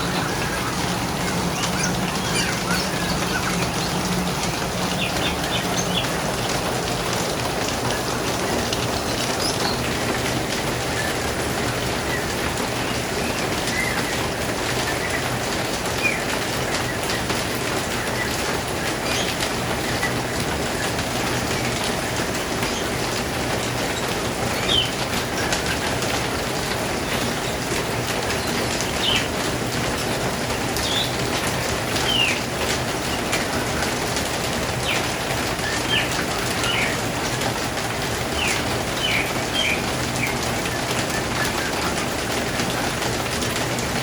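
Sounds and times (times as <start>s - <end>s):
steady rushing noise: 0.0s - 14.7s
small birds chirping: 0.0s - 44.0s.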